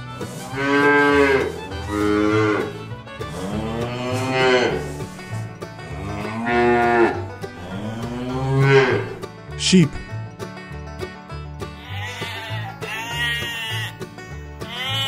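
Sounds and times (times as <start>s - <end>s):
quiet fiddle music: 0.0s - 15.0s
calves mooing: 0.4s - 5.2s, 5.8s - 9.2s, 11.8s - 14.0s, 14.6s - 15.0s.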